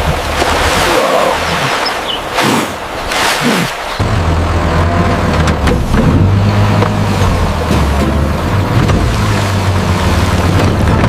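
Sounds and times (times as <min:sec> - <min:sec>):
heavy machine engine rumbling: 0:04.0 - 0:11.0.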